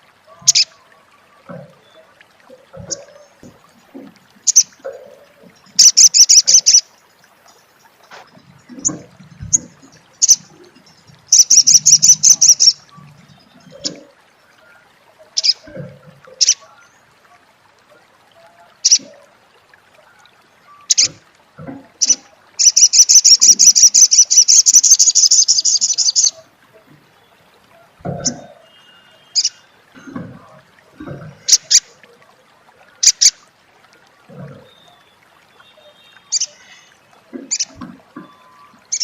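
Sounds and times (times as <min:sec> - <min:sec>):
bird chattering call: 0:00.5 - 0:00.7, 0:05.8 - 0:06.8, 0:11.3 - 0:12.8, 0:22.0 - 0:26.3.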